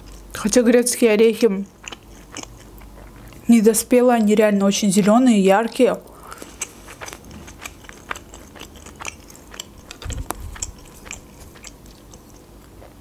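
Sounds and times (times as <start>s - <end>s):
chewing with wet mouth clicks: 0.0s - 0.4s, 1.5s - 3.5s, 6.2s - 13.0s.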